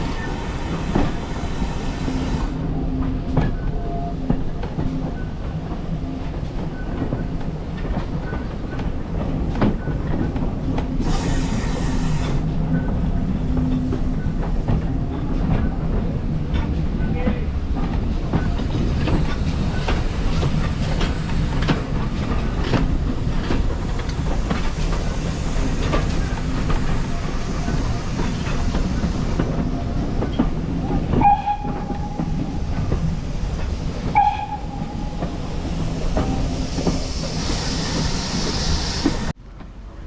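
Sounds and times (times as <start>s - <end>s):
steam hiss: 0.0s - 2.8s, 10.8s - 12.8s, 18.7s - 30.6s, 31.8s - 39.4s
steam train rumbling: 0.0s - 40.0s
wheels clicking over rail joints: 13.6s - 39.3s.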